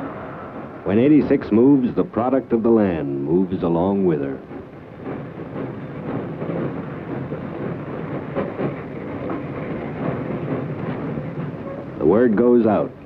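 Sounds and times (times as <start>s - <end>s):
muffled freight train rumble: 0.0s - 13.0s.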